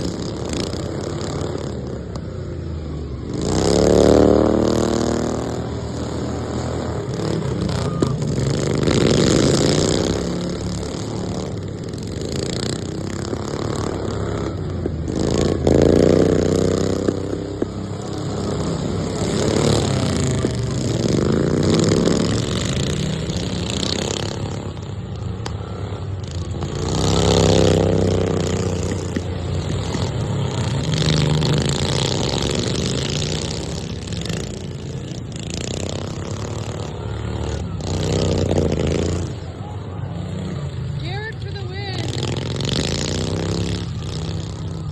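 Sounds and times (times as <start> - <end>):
racing lawn mower engines revving: 0.0 - 44.9.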